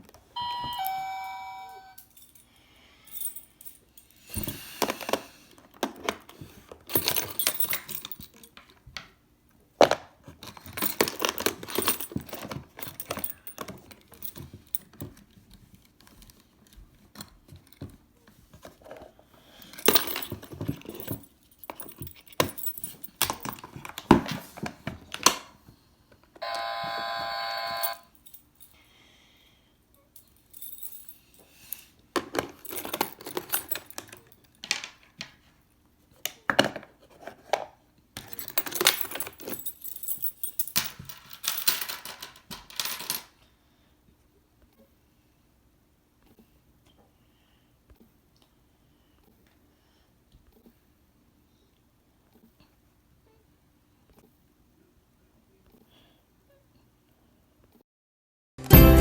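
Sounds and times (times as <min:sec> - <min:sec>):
electronic doorbell tone: 0:00.4 - 0:02.1, 0:26.4 - 0:28.1.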